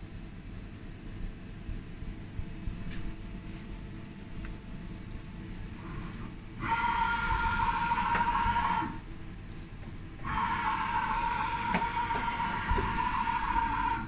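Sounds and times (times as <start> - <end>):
lathe high whine: 5.7 - 9.1, 10.2 - 14.0.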